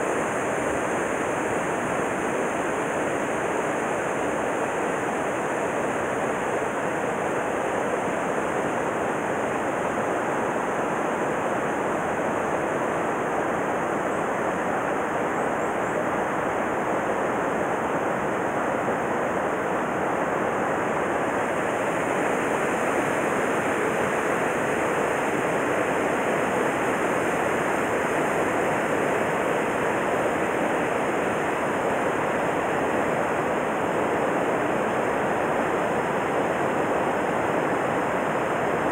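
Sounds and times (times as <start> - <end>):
stream rushing over rocks: 16.1 - 38.9.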